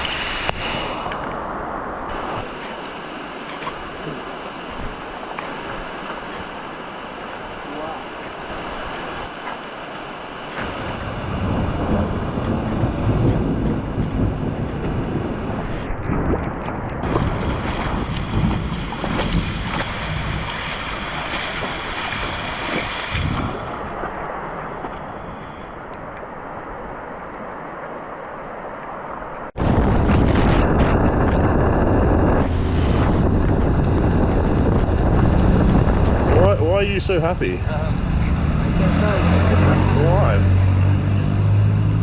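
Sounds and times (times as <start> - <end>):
wind buffeting microphone: 8.2 - 27.6, 29.5 - 42.0.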